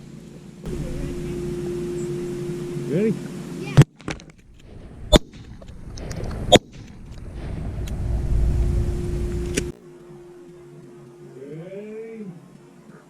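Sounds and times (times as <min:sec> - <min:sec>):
low rumble: 0:00.7 - 0:09.8.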